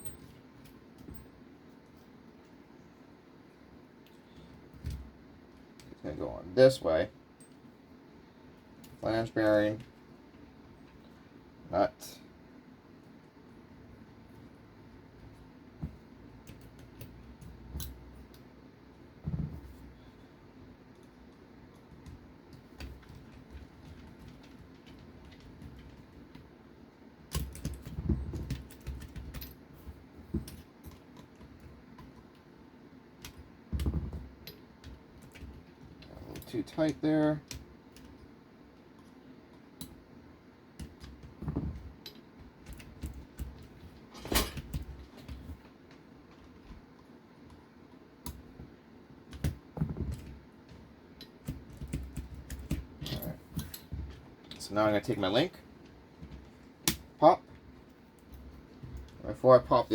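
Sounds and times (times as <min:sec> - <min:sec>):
handling noise: 0:27.2 - 0:40.1, 0:40.8 - 0:59.9
light clicks and taps of small parts: 0:27.3 - 0:32.5, 0:33.2 - 0:40.0, 0:40.8 - 0:55.2.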